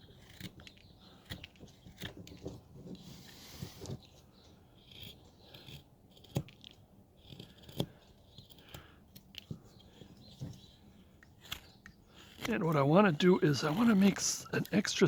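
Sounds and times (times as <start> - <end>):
knife carving wood: 0.0 - 15.0.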